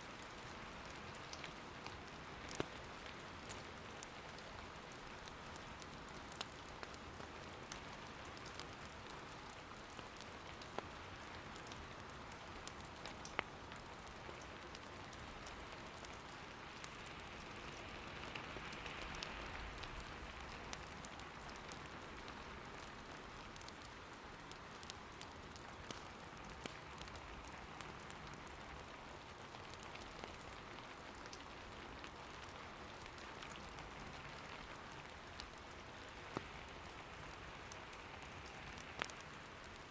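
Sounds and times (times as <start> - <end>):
steady rain patter: 0.0 - 39.9
firewood crackling: 0.2 - 39.9.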